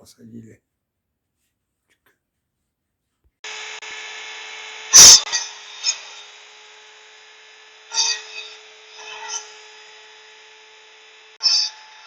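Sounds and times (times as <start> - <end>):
small power tool humming: 3.4 - 12.0.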